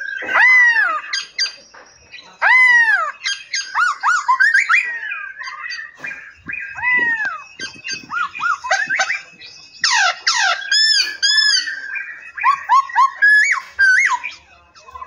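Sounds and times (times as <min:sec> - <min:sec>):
loud rising and falling bird calls: 0:02.2 - 0:15.0
quick bird chirps and whistles: 0:05.7 - 0:14.9.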